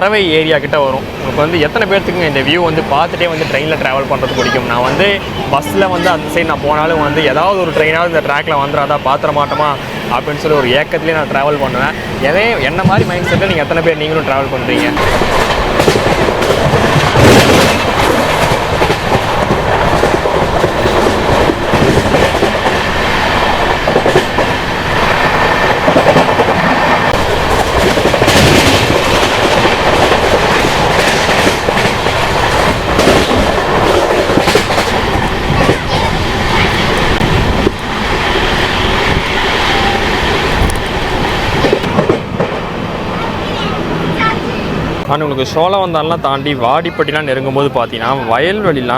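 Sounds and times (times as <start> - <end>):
rumble of wheels on track: 0.0 - 48.9
wheels clicking over rail joints: 14.9 - 39.3.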